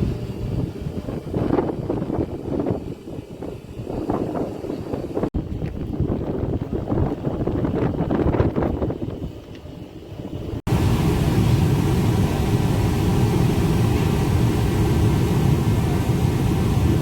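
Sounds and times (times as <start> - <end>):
wind and sea noise: 0.0 - 17.0
ship engines rumbling: 10.2 - 17.0.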